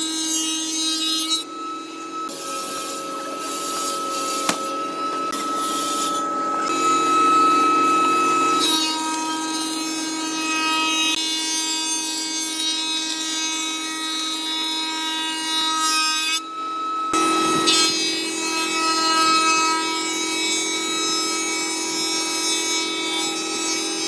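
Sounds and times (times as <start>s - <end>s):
power tool whining: 0.0s - 11.6s, 16.4s - 21.2s.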